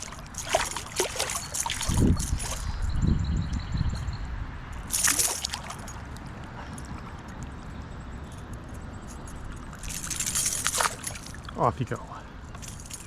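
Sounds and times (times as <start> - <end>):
flowing water rushing: 0.0 - 2.6
water splashing: 0.0 - 2.7, 4.8 - 7.3, 9.6 - 11.7.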